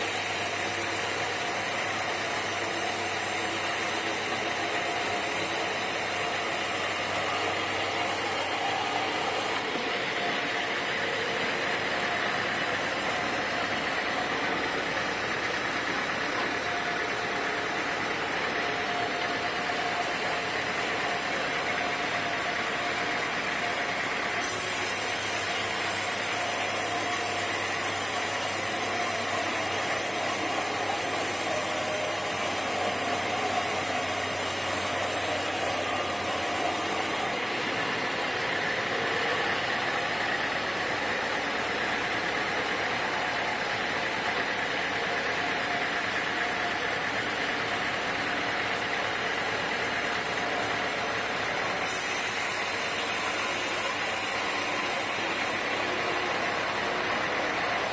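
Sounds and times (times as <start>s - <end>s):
high hiss: 0.0s - 9.6s, 24.3s - 37.4s, 51.8s - 57.9s
sawmill machinery drone: 0.0s - 57.9s.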